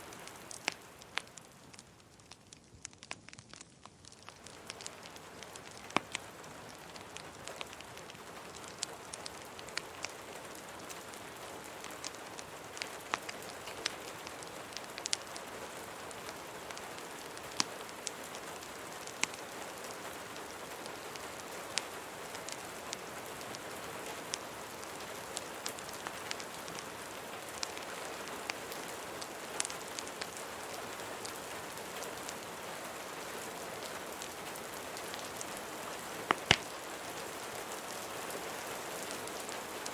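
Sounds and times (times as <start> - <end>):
crackling fireplace: 0.0 - 39.9
steady rain hiss: 0.0 - 39.9.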